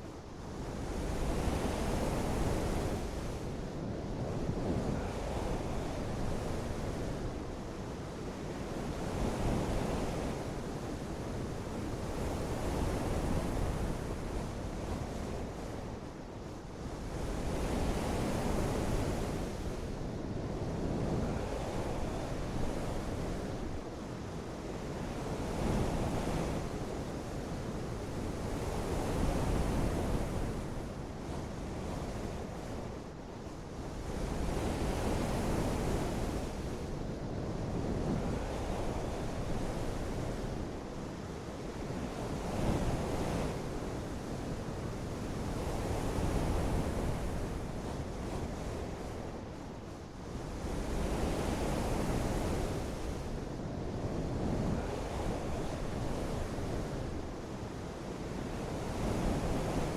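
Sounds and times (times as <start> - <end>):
wind: 0.0 - 59.9.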